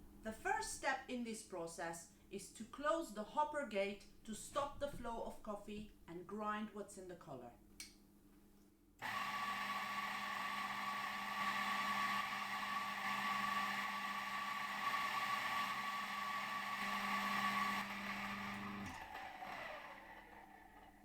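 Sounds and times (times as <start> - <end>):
coffee grinder whining: 9.0 - 21.0.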